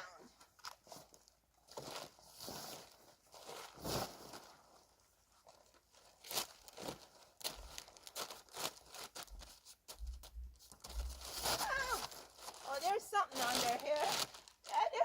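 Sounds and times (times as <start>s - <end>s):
plastic tarp crinkling: 0.3s - 15.0s
low thuds: 9.4s - 12.0s.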